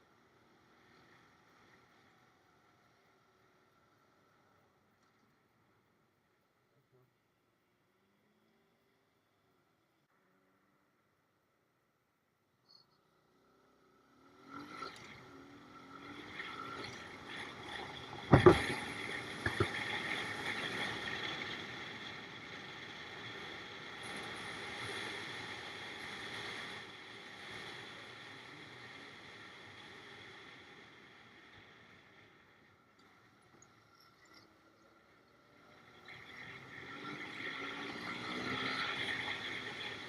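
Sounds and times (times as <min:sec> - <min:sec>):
wind noise: 0:17.6 - 0:21.8.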